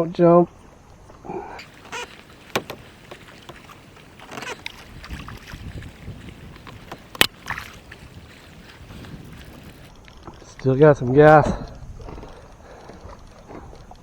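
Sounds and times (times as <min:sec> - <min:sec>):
water splashing and sloshing: 0:00.0 - 0:14.0
sharp knocks on kayak: 0:01.6 - 0:09.9.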